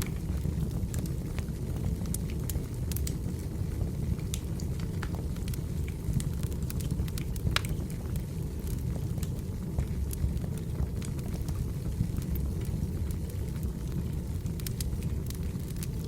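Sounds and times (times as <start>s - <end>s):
fire rumbling: 0.0s - 16.0s
firewood popping and snapping: 4.2s - 8.0s.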